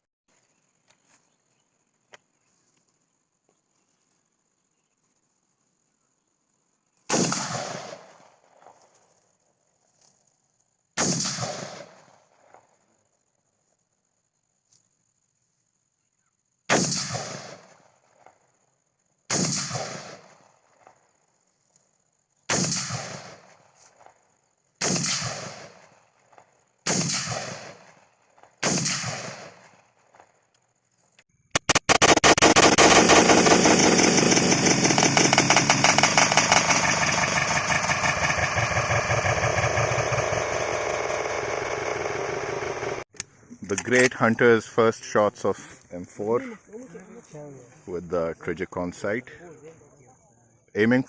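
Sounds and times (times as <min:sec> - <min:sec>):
gunshots with echo: 0:24.8 - 0:25.8, 0:26.9 - 0:28.0, 0:28.6 - 0:29.7, 0:31.6 - 0:41.0
loud dense fluttering noise: 0:31.6 - 0:43.0.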